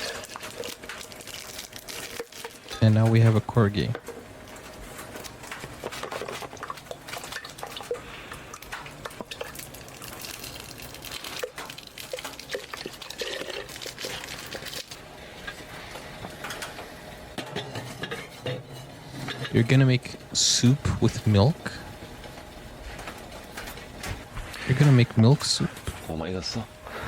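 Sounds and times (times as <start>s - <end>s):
utensils and dishes clinking: 0.0s - 16.8s, 17.4s - 21.8s
liquid poured into a pot: 8.6s - 14.9s.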